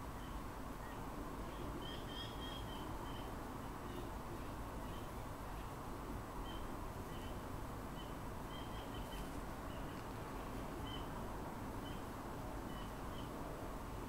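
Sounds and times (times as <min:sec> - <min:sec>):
low background hiss: 0:00.0 - 0:14.0
faint bird chirps: 0:00.2 - 0:05.7, 0:06.4 - 0:07.4, 0:08.0 - 0:10.0, 0:10.8 - 0:11.1, 0:12.7 - 0:13.4.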